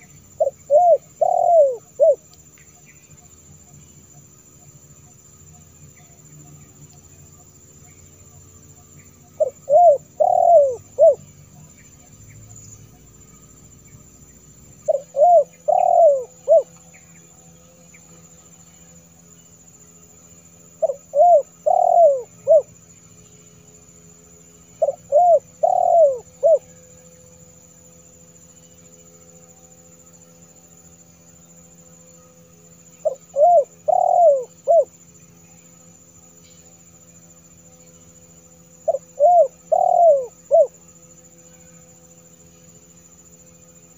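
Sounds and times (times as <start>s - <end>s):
dove cooing: 0.0s - 2.2s, 9.4s - 11.2s, 14.8s - 16.8s, 20.8s - 22.7s, 24.8s - 26.7s, 33.0s - 35.0s, 38.8s - 40.8s.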